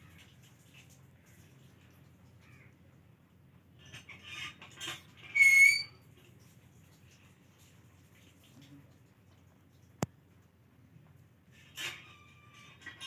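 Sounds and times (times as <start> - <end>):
high-pitched squeak: 5.2 - 6.0.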